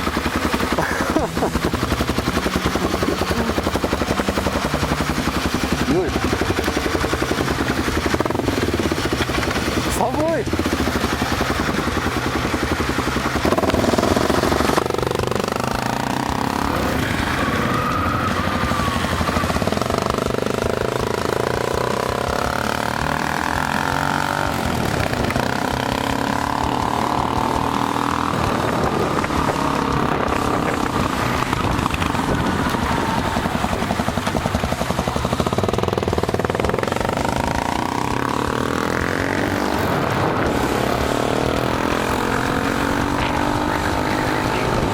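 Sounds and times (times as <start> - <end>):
motorcycle engine revving: 0.0 - 44.9
wind rush: 24.6 - 44.9.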